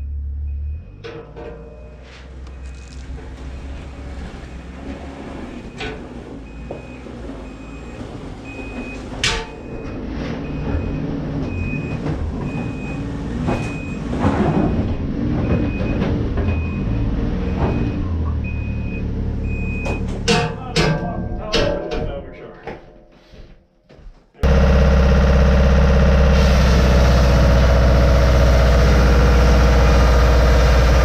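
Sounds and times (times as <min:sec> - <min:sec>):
reversing alarm beeping: 0:01.6 - 0:03.8, 0:05.5 - 0:20.1
engine running: 0:24.4 - 0:31.0.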